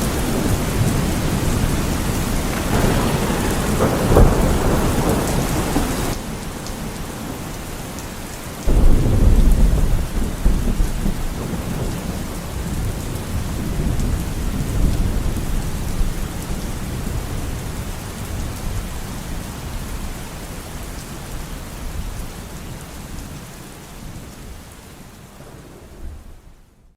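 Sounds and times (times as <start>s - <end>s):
thunderclap and rumble: 0.0s - 8.0s, 8.6s - 19.8s, 25.4s - 26.9s
rain falling: 0.0s - 26.9s.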